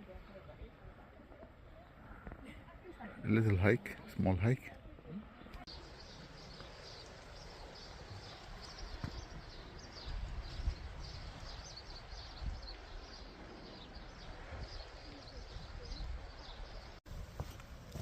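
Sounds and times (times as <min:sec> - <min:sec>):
small birds chirping: 0:05.0 - 0:17.0
wind rumble on microphone: 0:06.0 - 0:18.0
soft footsteps: 0:17.1 - 0:18.0.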